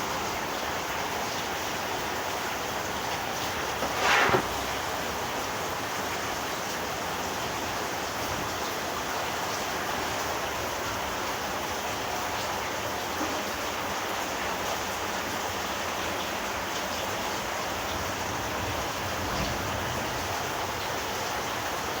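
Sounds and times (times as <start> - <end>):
heavy rain rushing: 17.4 - 22.0.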